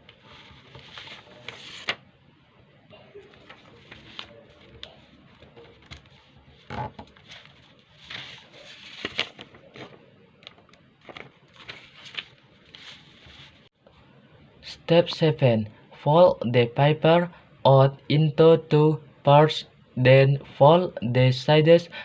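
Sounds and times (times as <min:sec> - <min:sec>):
paper being folded: 0:00.0 - 0:02.0, 0:03.2 - 0:13.7.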